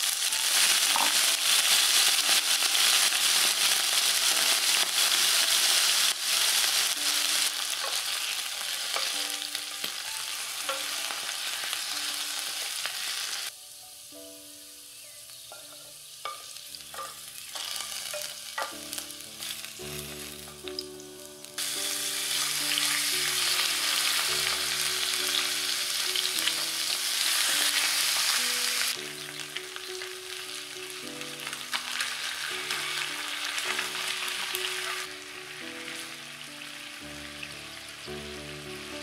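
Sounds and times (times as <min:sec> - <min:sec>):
chicken sizzling in hot oil: 0:00.0 - 0:39.0
soft instrumental music: 0:00.0 - 0:39.0.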